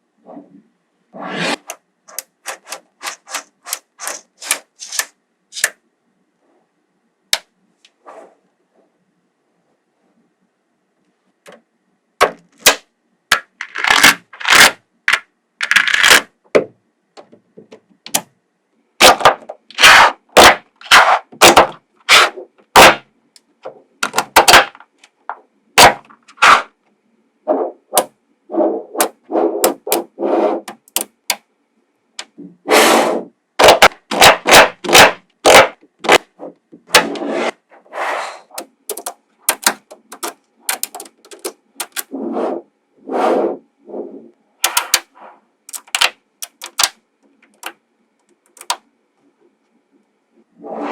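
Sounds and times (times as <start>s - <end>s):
balls rattling and scraping: 0.3s - 5.8s, 13.3s - 16.4s, 19.0s - 23.0s, 23.6s - 26.8s, 27.5s - 31.4s, 33.6s - 42.7s, 44.1s - 48.8s
magnetic balls clicking together: 29.0s - 31.4s, 38.5s - 42.1s, 44.6s - 45.1s, 45.7s - 48.8s.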